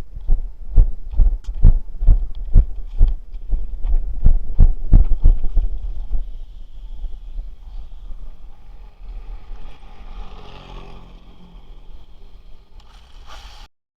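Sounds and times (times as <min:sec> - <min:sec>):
wind buffeting microphone: 0:00.0 - 0:12.8
rc truck motor whine: 0:06.2 - 0:13.6.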